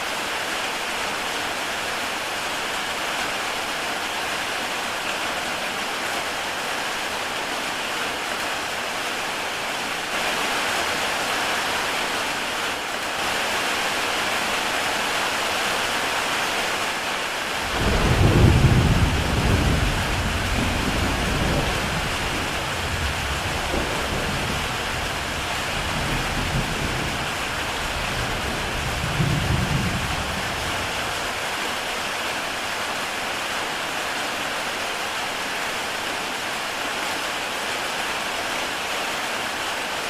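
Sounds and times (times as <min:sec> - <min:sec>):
heavy rain on a tile roof: 0:00.0 - 0:40.0
low rumble of thunder: 0:17.7 - 0:31.2.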